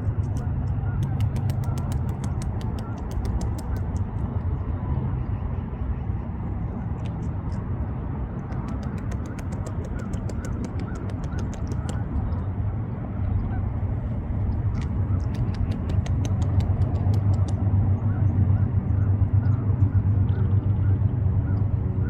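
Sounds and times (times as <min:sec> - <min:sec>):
steady low rumble: 0:00.0 - 0:22.0
beaver gnawing bark: 0:00.1 - 0:04.2, 0:08.5 - 0:12.1, 0:14.6 - 0:17.6.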